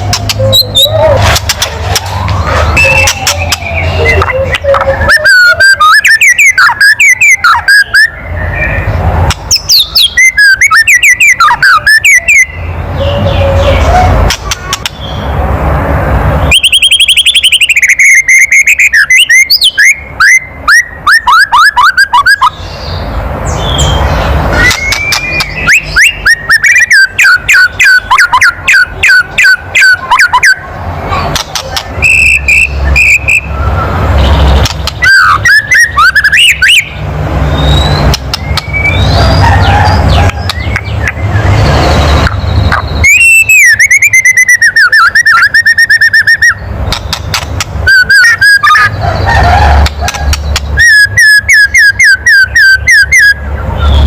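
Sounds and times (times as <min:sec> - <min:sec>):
bird whistling downward: 0:02.1 - 0:08.8, 0:09.5 - 0:12.6, 0:16.5 - 0:22.6, 0:23.7 - 0:30.6, 0:32.0 - 0:34.4, 0:35.0 - 0:37.0, 0:37.6 - 0:46.6, 0:47.8 - 0:54.0.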